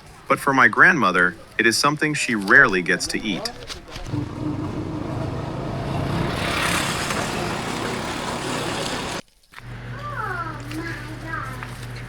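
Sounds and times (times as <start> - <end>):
road noise: 4.0 - 9.2
motorbike engine running: 4.1 - 9.2
rushing wind: 4.1 - 9.2.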